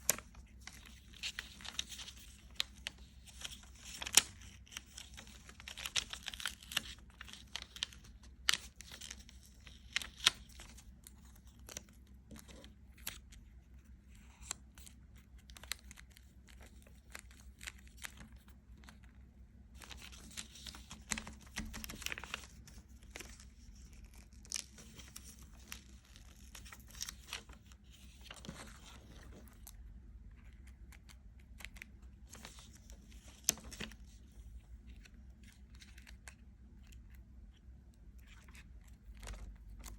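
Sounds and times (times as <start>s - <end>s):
crinkling and tearing: 0.0s - 13.3s, 19.8s - 29.8s.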